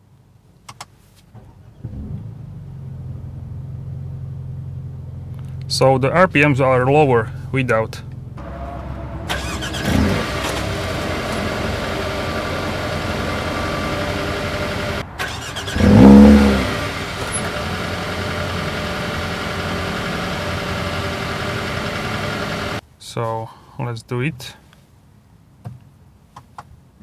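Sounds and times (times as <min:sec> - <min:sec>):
car engine idling: 0:01.3 - 0:22.8
engine revving: 0:01.8 - 0:03.3, 0:08.4 - 0:22.8.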